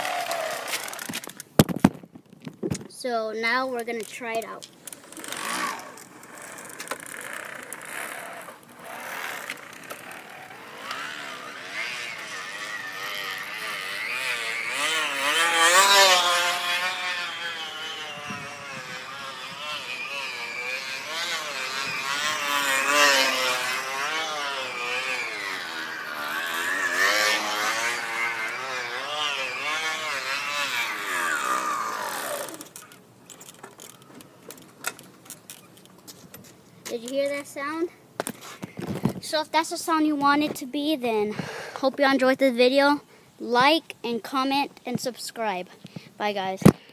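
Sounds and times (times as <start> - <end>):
plastic bottle buzzing on spokes: 0.0 - 1.7, 4.0 - 34.6.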